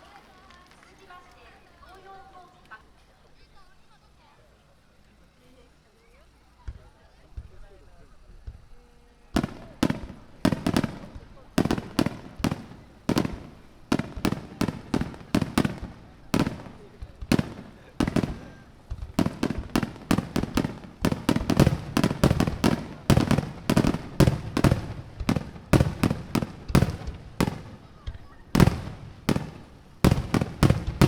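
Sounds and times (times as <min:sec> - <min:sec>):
firework shells bursting: 0:09.4 - 0:31.0.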